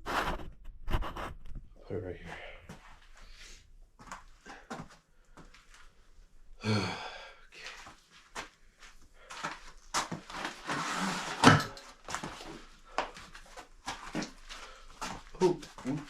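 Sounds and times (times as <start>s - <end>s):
man groaning: 6.6s - 7.2s.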